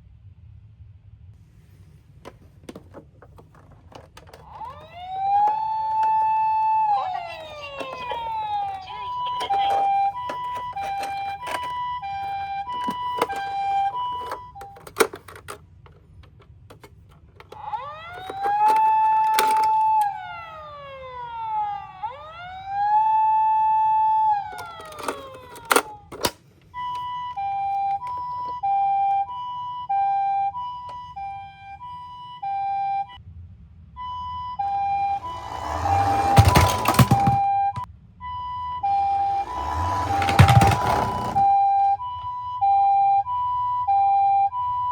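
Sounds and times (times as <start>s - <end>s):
toys clicking and knocking: 2.2s - 20.2s, 24.4s - 26.4s, 35.2s - 37.9s, 39.2s - 41.6s
two-tone toy siren: 3.5s - 15.6s, 16.7s - 33.2s, 34.0s - 44.9s
wailing toy siren: 3.5s - 15.6s, 16.7s - 33.2s, 34.0s - 44.9s.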